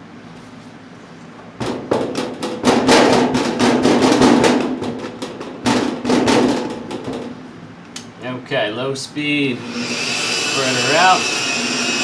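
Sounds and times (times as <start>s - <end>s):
rotary polisher motor humming: 9.6s - 12.0s.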